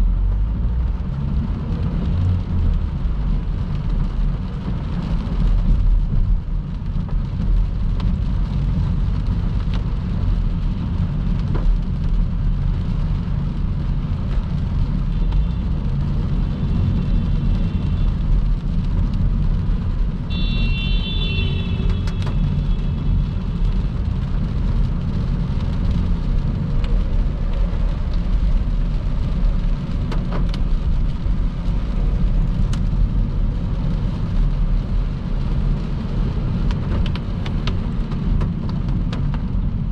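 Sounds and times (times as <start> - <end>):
tyre and road rumble: 0.0 - 39.9.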